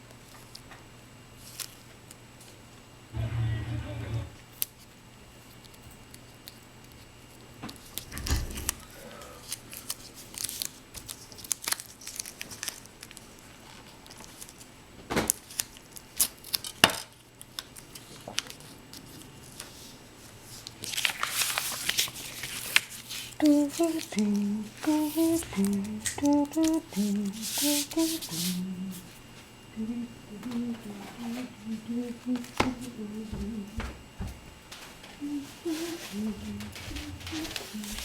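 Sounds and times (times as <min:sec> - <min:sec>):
low bump: 0:03.2 - 0:04.4
paper crinkling: 0:09.5 - 0:14.7, 0:20.5 - 0:28.6.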